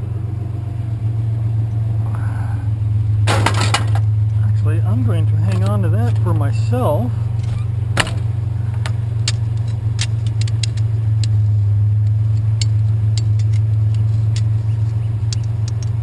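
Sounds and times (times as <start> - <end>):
vehicle engine idling: 0.0 - 16.0
small metal tools clinking: 8.8 - 11.4, 12.3 - 16.0.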